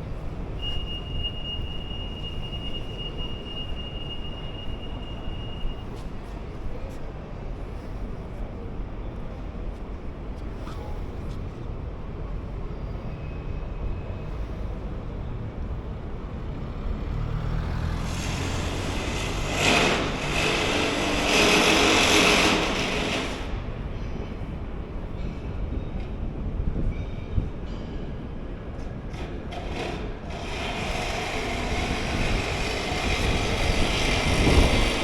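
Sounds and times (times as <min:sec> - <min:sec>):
urban traffic rumble: 0:00.0 - 0:35.0
large vehicle passing: 0:15.9 - 0:23.4.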